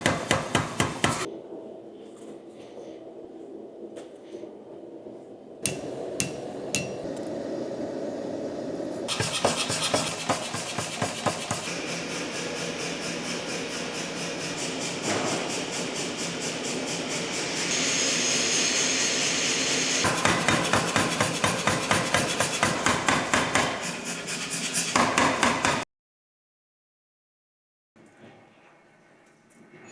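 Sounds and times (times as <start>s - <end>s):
hammer striking steel: 5.7s - 7.1s.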